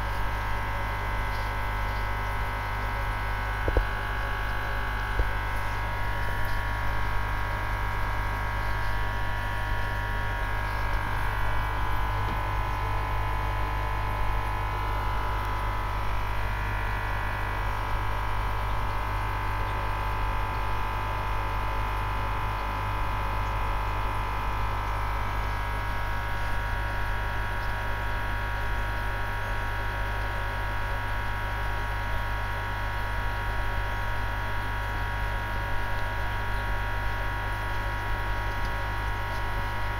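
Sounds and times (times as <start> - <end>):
aquarium pump humming: 0.0 - 39.9
water circulating: 0.2 - 19.9, 33.0 - 39.9.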